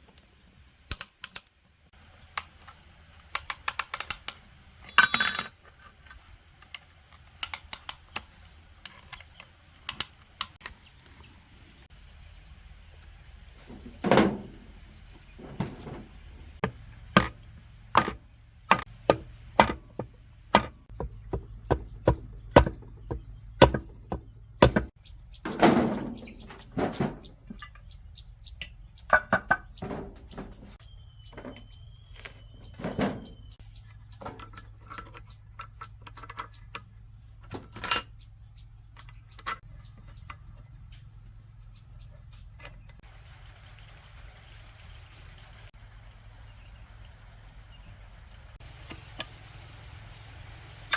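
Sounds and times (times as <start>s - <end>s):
sharp taps and knocks: 18.0s - 25.0s.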